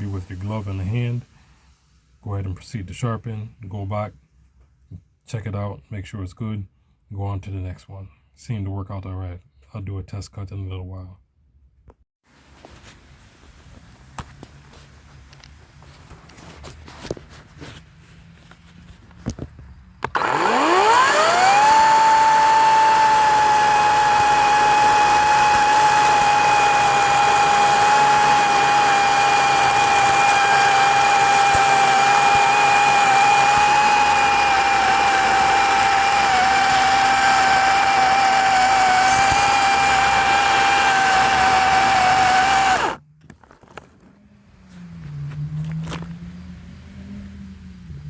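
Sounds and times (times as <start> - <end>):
electric chainsaw motor whining: 20.0 - 43.0.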